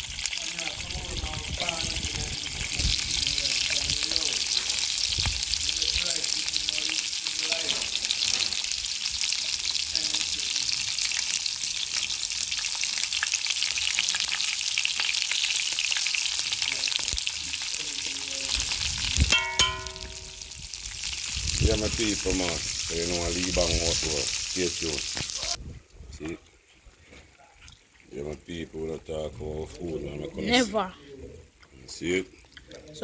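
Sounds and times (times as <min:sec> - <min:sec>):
chicken sizzling in hot oil: 0:00.0 - 0:25.6
metallic clank: 0:19.3 - 0:20.6.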